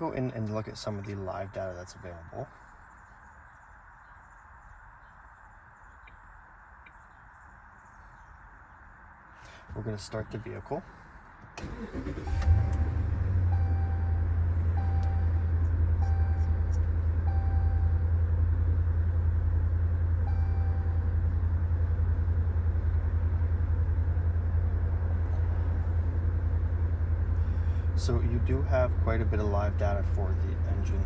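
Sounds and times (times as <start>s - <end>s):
car engine starting and idling: 10.9s - 31.0s.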